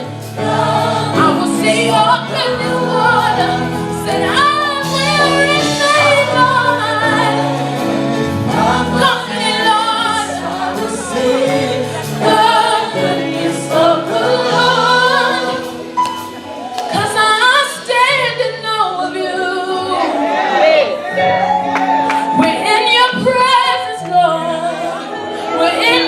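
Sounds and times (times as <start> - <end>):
sustained instrumental chords: 0.0 - 17.3
choir singing gospel: 0.0 - 26.0.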